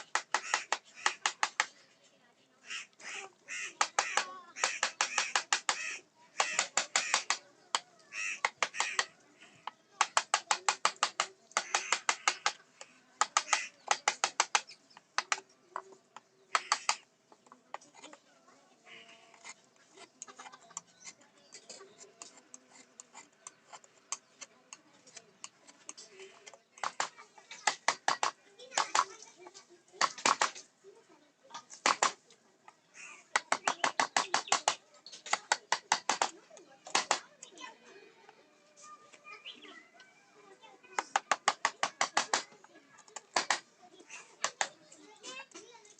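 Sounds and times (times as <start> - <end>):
mallet striking chisel: 3.8 - 5.8
chisel blade scraping wood: 19.0 - 27.1.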